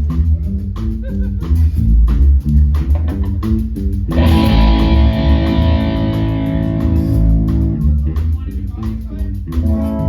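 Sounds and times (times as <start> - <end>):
electric guitar and bass noodling: 0.0 - 10.0
guitar chord ringing: 4.2 - 7.5.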